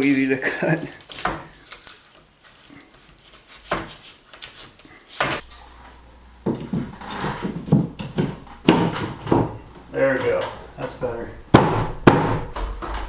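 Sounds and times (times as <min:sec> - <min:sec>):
wooden boards knocking and clattering: 0:06.4 - 0:13.0.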